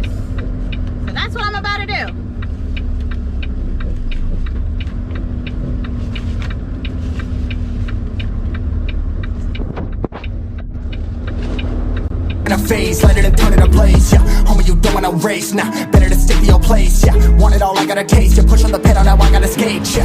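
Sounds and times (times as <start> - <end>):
light regular ticking: 0.0 - 19.5
diesel engine rumble: 0.0 - 20.0.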